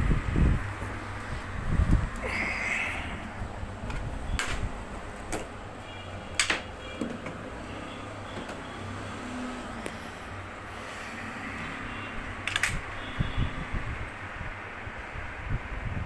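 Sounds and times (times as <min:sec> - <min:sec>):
sharp clicks and knocks: 0:03.8 - 0:05.5, 0:06.4 - 0:07.4.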